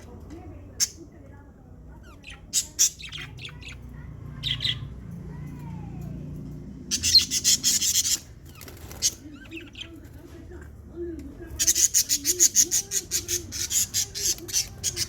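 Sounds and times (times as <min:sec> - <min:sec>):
lovebirds chirping shrilly: 0:02.0 - 0:04.9, 0:06.9 - 0:10.1, 0:11.6 - 0:15.0.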